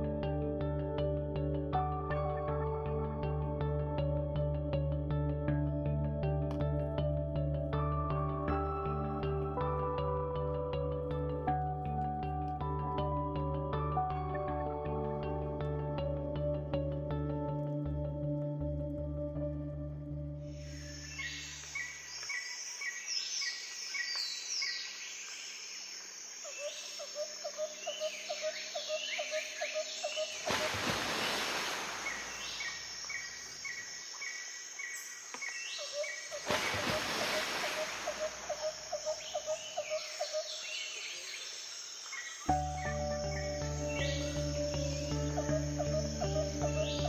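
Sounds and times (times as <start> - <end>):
birds chirping: 26.5 - 47.0
bird trilling: 37.3 - 40.9.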